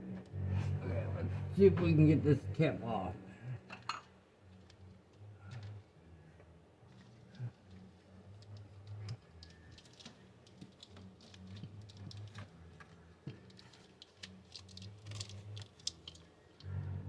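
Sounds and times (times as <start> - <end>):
low hum: 0.0 - 10.4, 16.5 - 17.0.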